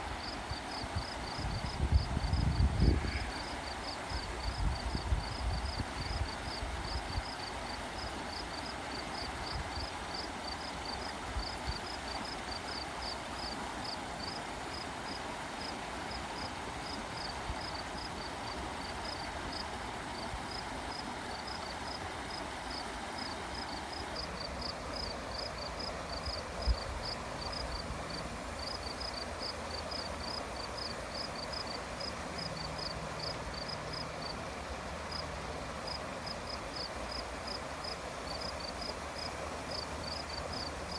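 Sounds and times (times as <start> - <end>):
stream water flowing: 0.0 - 40.9.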